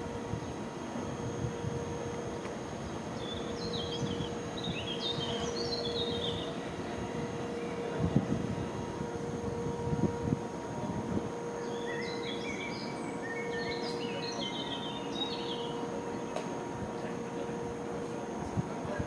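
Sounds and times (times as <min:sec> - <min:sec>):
constant low hum: 0:00.0 - 0:19.0
songbird singing: 0:02.8 - 0:07.9, 0:11.4 - 0:17.0.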